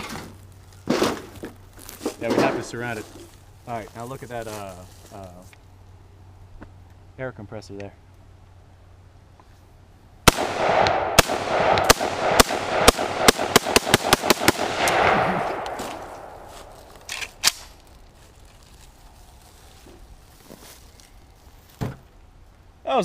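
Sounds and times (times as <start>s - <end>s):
rifle gunshots: 10.3s - 17.7s.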